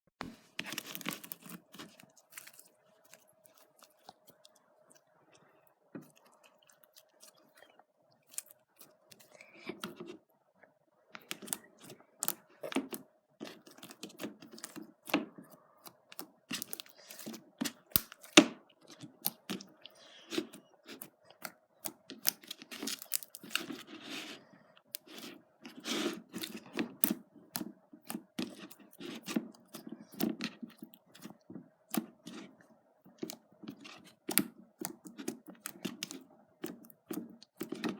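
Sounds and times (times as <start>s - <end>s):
faint steady hum: 0.2s - 37.9s.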